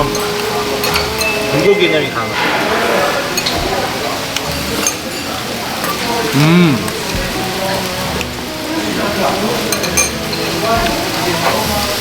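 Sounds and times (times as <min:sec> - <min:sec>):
meat sizzling in a pan: 0:00.0 - 0:12.0
person speaking: 0:05.9 - 0:07.2.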